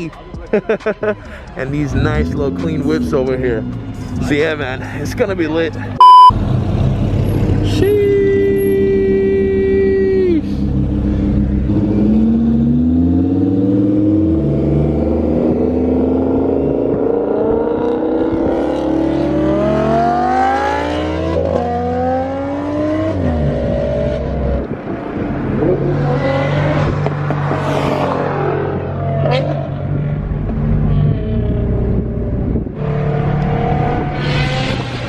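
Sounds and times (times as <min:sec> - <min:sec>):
car engine accelerating: 0:05.7 - 0:35.0.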